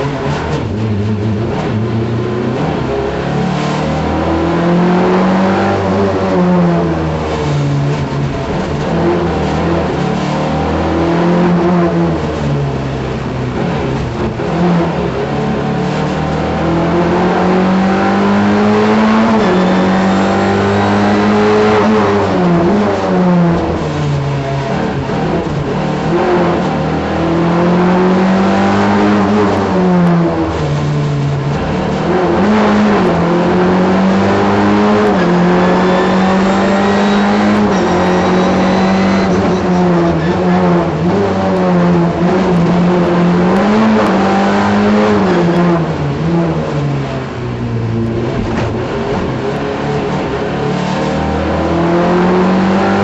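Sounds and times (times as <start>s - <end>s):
rally car engine revving: 0.0s - 53.0s.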